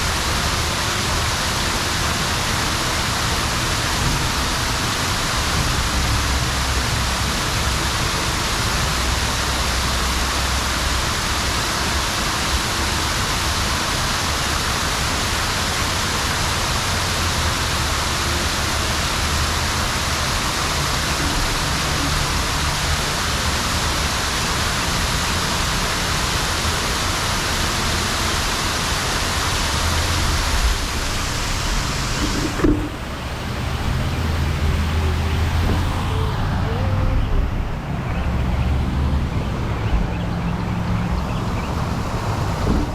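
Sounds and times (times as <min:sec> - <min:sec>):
wind rush on microphone: 0:29.4 - 0:42.9.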